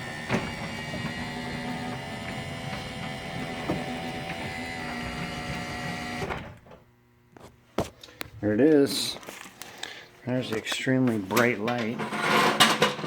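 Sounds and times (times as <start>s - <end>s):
garage door opener motor whine: 0.0s - 7.2s.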